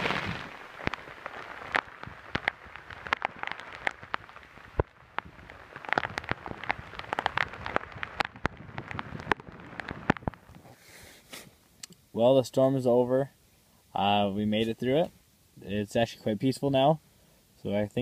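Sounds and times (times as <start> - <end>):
raindrops tapping on tarp: 0.0 - 10.8
steady hiss of rain: 0.0 - 18.0.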